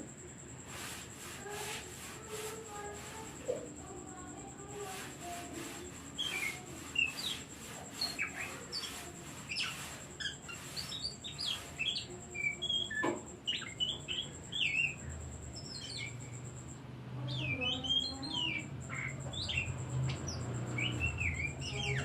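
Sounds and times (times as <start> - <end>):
bird chattering: 0.6 - 16.7, 17.3 - 22.0
bird singing whistled notes: 6.2 - 16.4, 17.3 - 22.0.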